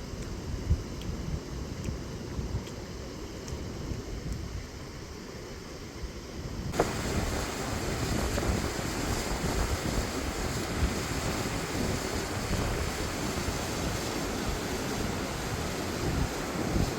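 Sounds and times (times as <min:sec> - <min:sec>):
wind buffeting microphone: 0:06.4 - 0:16.9
creek rushing over rock: 0:06.7 - 0:16.9.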